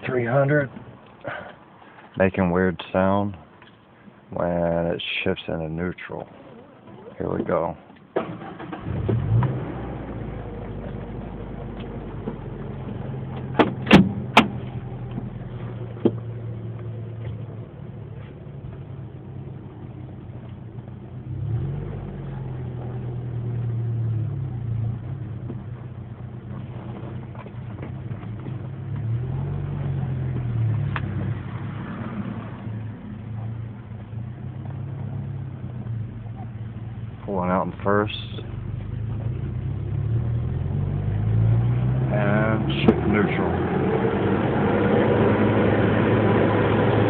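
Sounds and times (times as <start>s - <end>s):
pickup engine revving: 8.2s - 16.9s, 21.2s - 25.5s, 38.5s - 47.0s.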